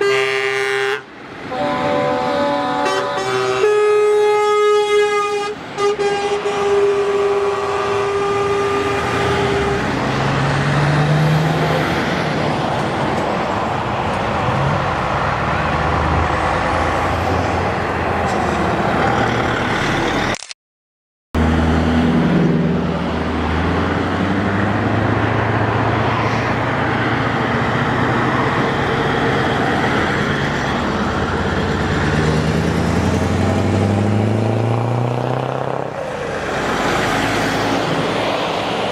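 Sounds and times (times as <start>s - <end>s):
truck horn: 0.0s - 10.0s
truck diesel engines revving: 0.0s - 20.4s, 21.4s - 38.9s.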